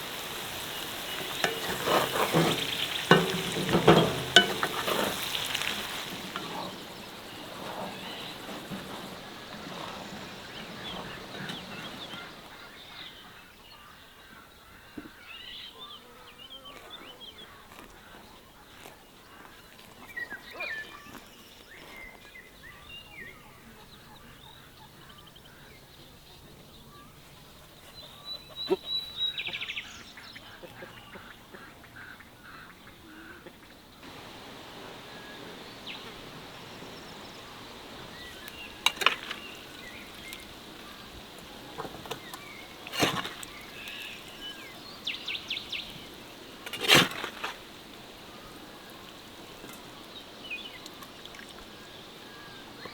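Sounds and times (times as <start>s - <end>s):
frying sizzle: 0.0s - 12.6s, 34.0s - 52.8s
birds chirping: 0.0s - 52.9s.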